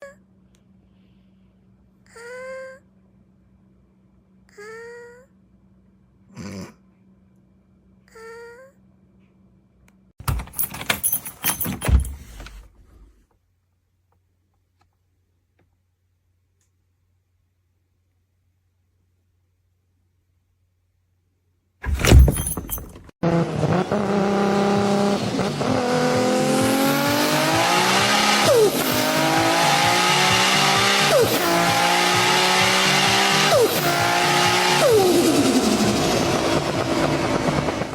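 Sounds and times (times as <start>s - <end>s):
clattering and jangling: 10.2s - 12.8s, 21.8s - 23.1s
car engine accelerating through gears: 23.2s - 37.9s.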